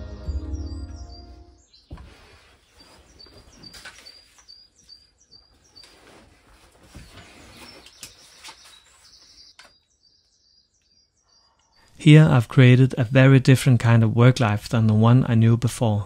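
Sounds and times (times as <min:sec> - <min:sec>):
songbird chirping: 0:00.0 - 0:15.2
rustles on cushioned seat: 0:01.9 - 0:08.8.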